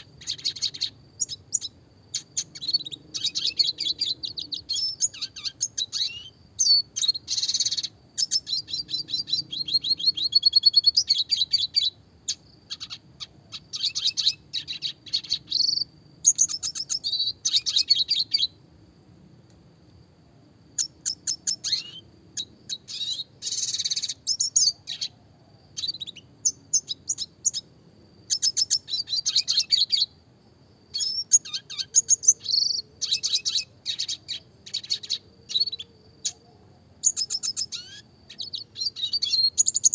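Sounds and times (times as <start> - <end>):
bird singing chattering trills: 0.0 - 18.6, 20.8 - 25.2, 25.8 - 27.7, 28.3 - 30.2, 30.9 - 36.4, 37.0 - 39.9.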